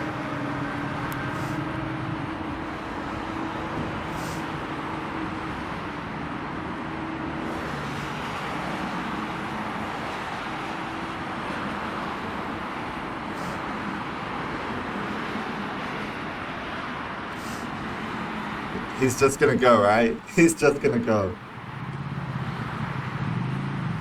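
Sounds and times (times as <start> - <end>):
faint low engine hum: 0.0 - 7.2, 17.4 - 24.0
motorway traffic rush: 0.0 - 24.0.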